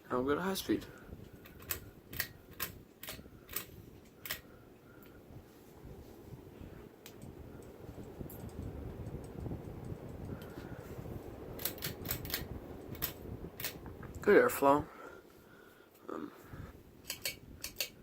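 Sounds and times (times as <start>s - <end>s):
ceiling fan air rush: 0.0s - 18.0s
sharp clicks: 1.4s - 4.4s, 11.6s - 14.2s.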